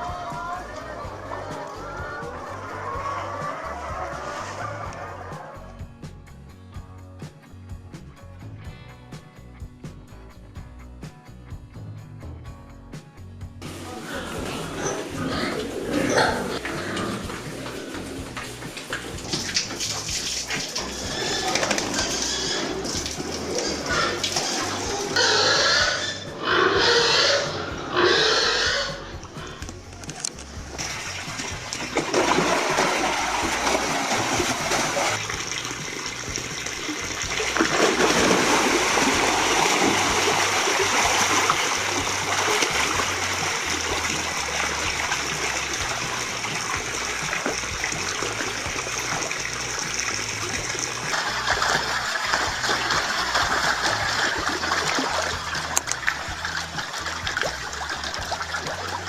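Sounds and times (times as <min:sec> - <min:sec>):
rushing splashing water: 0:13.6 - 0:25.2, 0:29.7 - 0:59.0.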